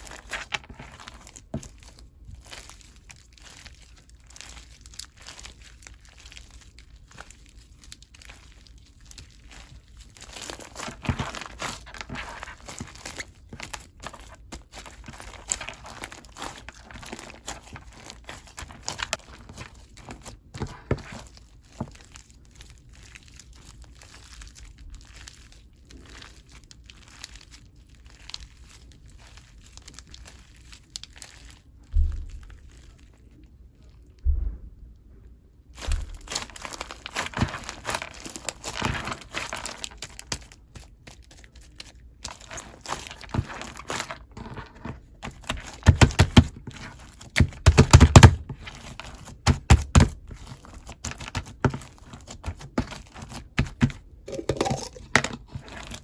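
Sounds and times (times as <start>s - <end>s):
slime squished by hand: 0.0s - 34.7s, 35.7s - 44.4s, 45.1s - 56.0s
dull bumps: 34.2s - 35.0s.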